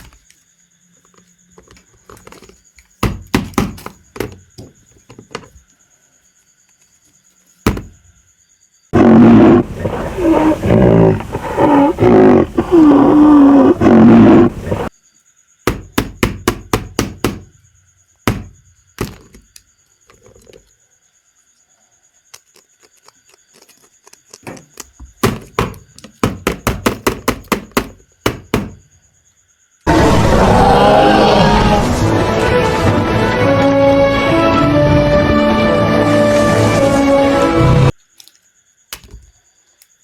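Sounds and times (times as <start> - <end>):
animal roar with wavering pitch: 8.9 - 14.9, 29.9 - 35.4
music: 29.9 - 38.0.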